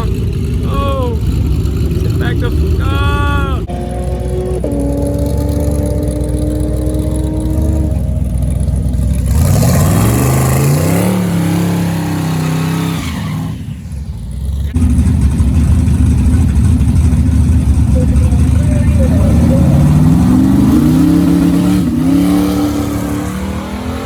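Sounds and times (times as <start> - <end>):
drag car engine revving: 0.0 - 24.0
low engine rumble: 0.0 - 24.0.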